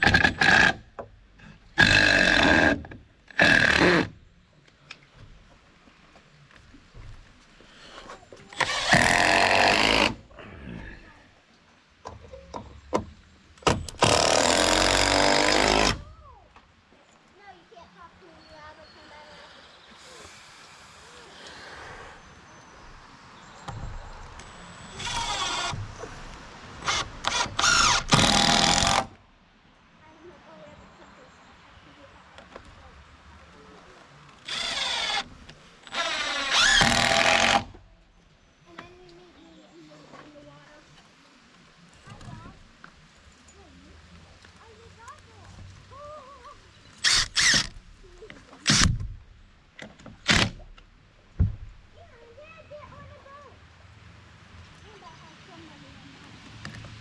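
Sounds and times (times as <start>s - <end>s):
cordless drill whining: 3.4s - 4.1s, 8.5s - 10.2s, 13.9s - 16.0s, 24.8s - 25.9s, 26.8s - 29.1s, 34.4s - 37.8s, 47.0s - 47.8s.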